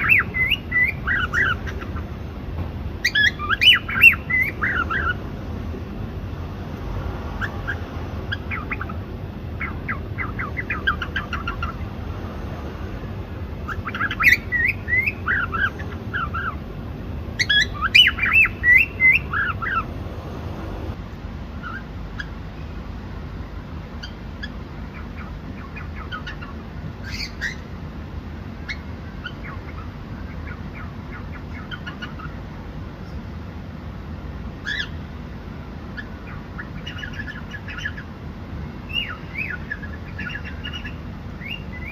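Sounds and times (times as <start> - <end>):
cockatiel chirping: 0.0 - 2.1, 3.0 - 5.2, 7.4 - 9.0, 9.6 - 11.8, 13.6 - 16.6, 17.4 - 19.9, 21.6 - 22.3, 24.0 - 27.6, 28.6 - 32.4, 34.6 - 35.0, 36.0 - 38.1, 38.9 - 41.9.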